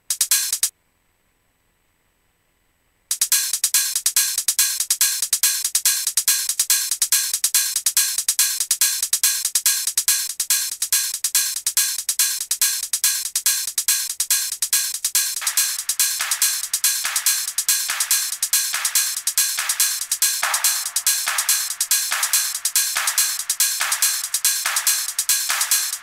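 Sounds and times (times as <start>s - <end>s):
trance synth riff: 15.4s - 26.0s.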